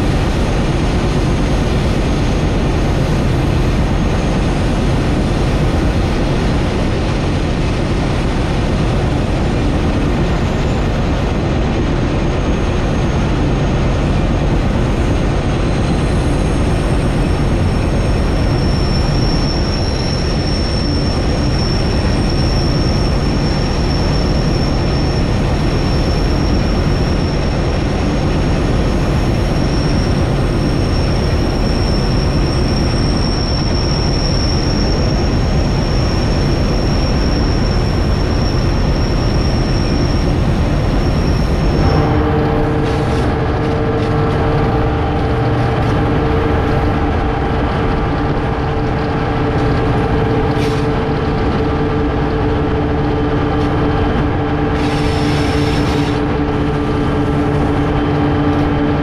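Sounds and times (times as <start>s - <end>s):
heavy rumble of train: 0.0s - 59.0s
high-pitched wheel squeal: 14.9s - 59.0s.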